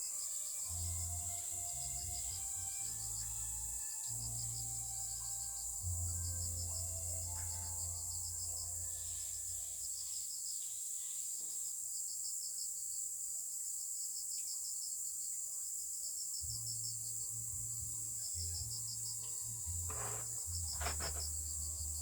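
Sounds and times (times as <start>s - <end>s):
high-pitched insect buzz: 0.0s - 11.3s, 16.5s - 22.0s
crickets chirping: 0.0s - 22.0s.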